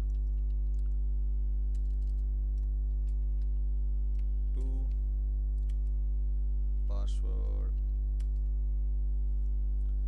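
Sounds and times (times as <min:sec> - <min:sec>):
low electrical hum: 0:00.0 - 0:10.0
keyboard keystrokes: 0:01.7 - 0:03.5.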